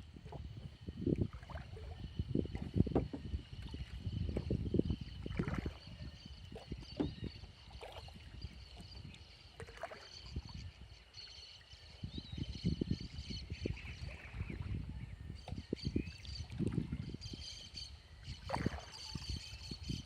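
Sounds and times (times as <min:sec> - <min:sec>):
kayak paddle pulling through water: 0:00.0 - 0:10.6, 0:18.4 - 0:19.9
water lapping at hull: 0:00.0 - 0:20.0.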